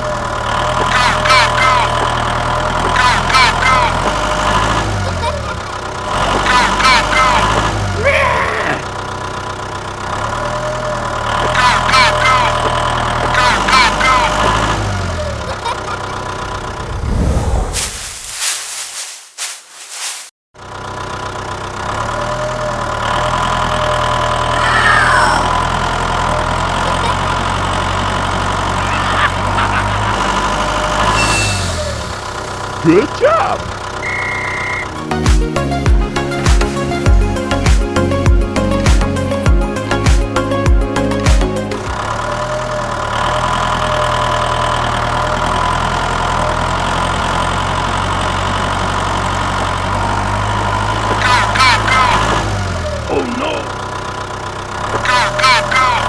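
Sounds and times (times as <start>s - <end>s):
engine idling: 0.0s - 17.2s, 20.6s - 56.0s
short falling squeal: 31.0s - 32.0s, 34.0s - 34.9s
background music: 34.9s - 41.9s.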